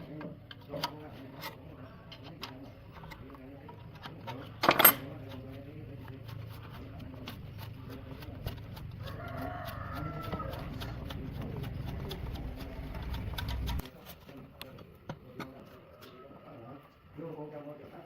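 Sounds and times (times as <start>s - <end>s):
rooster crowing: 8.9s - 11.1s.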